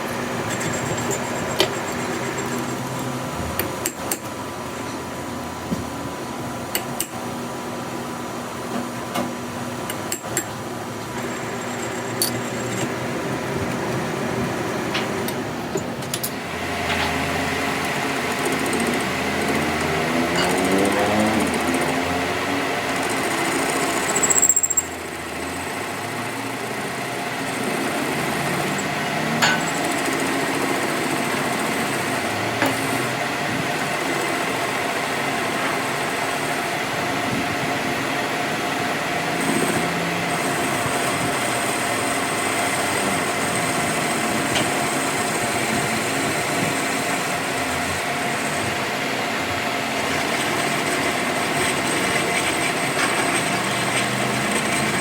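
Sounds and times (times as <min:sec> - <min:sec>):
machine running: 0:09.8 - 0:55.0.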